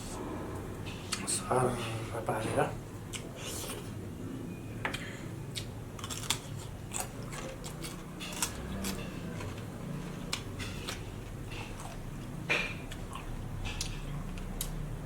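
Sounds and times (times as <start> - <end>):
chewing food: 5.5 - 12.3, 12.9 - 14.9.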